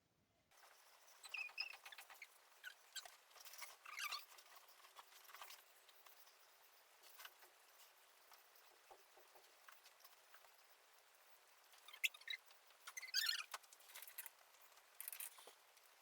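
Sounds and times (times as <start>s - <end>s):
short high squeaks: 1.1s - 5.4s, 11.8s - 14.2s.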